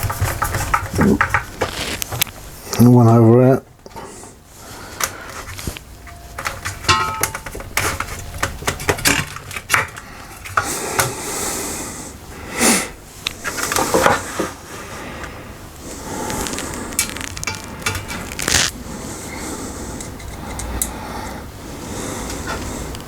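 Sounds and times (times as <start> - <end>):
tools and hard parts handled: 5.0 - 11.1, 16.3 - 18.8.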